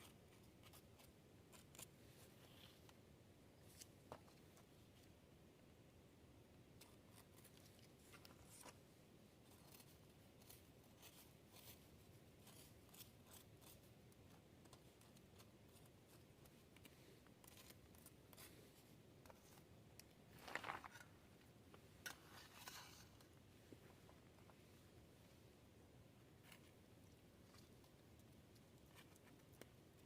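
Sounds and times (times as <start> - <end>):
soft irregular clicks: 26.4 - 30.0.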